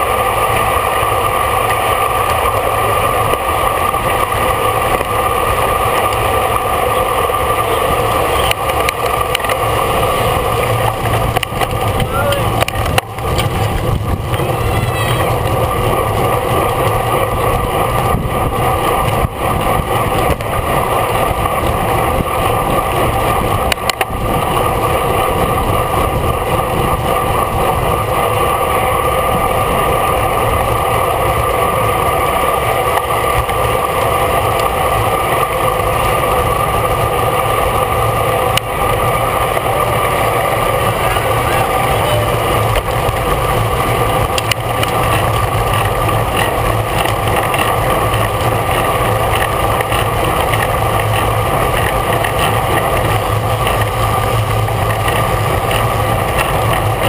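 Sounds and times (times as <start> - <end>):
road noise: 0.0 - 57.0
wind rushing: 9.0 - 24.3.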